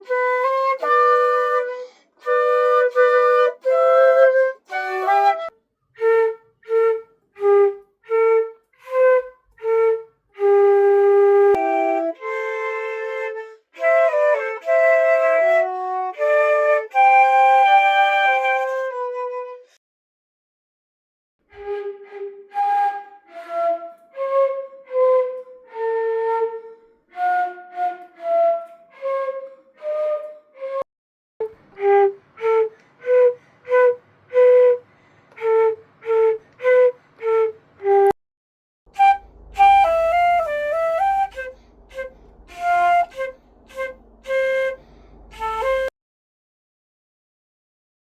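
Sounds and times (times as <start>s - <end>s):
solo flute playing: 0.0s - 19.8s, 21.5s - 38.2s, 38.9s - 45.9s
low hum: 38.9s - 45.9s.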